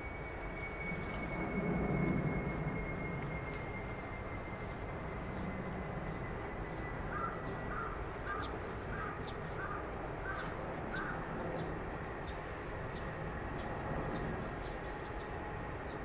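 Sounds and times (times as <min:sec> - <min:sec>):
bird calling: 0:07.1 - 0:11.3.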